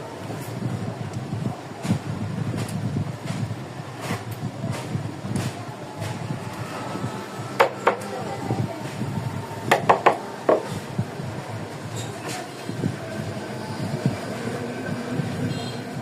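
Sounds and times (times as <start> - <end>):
low workshop rumble: 0.0 - 16.0
sharp knocks on wood: 7.6 - 8.0, 9.7 - 10.7.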